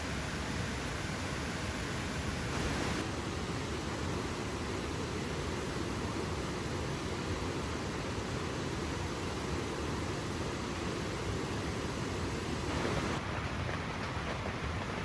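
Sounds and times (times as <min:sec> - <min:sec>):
steady rain falling: 0:02.5 - 0:03.1, 0:10.7 - 0:15.0.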